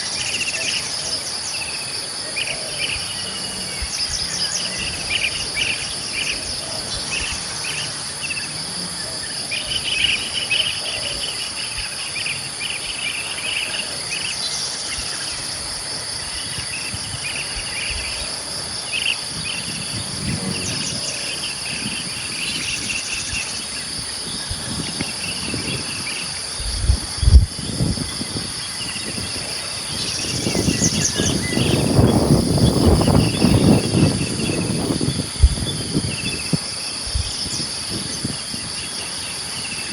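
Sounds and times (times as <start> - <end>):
birds chirping: 0.0 - 39.9
crickets trilling: 0.0 - 39.9
low rumbling noise: 17.0 - 38.4.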